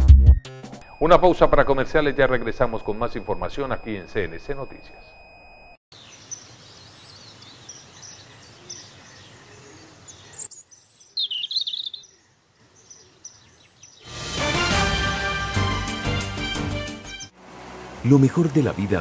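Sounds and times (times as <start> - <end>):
loud music: 0.0 - 0.8, 14.1 - 17.3
birds chirping: 0.8 - 14.2.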